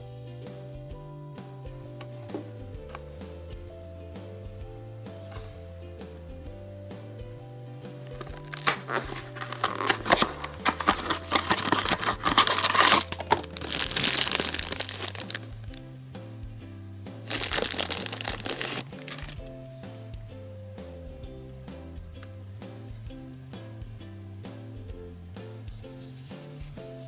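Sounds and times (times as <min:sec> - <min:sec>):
background music: 0:00.0 - 0:27.0
plastic packaging crinkling: 0:08.6 - 0:15.4.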